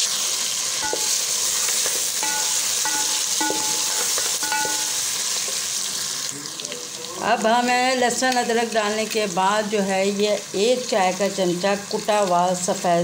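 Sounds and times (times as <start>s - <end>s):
meat sizzling in hot oil: 0.0s - 13.0s
ladle clinking against metal pot: 0.8s - 5.1s.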